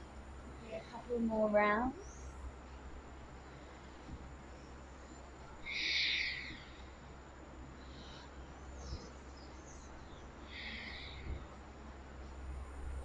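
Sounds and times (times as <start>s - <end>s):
steady low hum: 0.0s - 13.0s
faint high bird chirps: 5.6s - 6.9s.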